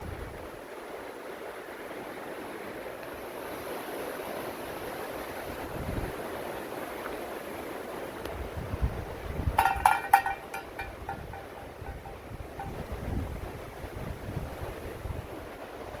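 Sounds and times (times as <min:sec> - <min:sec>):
wind blowing: 0:08.4 - 0:16.0
wind gust buffeting microphone: 0:08.4 - 0:16.0.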